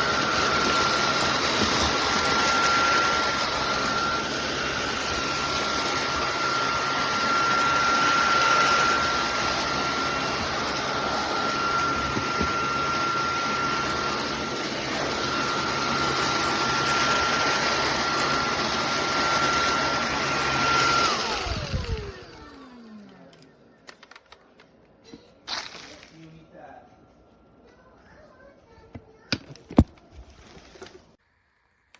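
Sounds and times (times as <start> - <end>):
vacuum motor whine: 0.0 - 23.6.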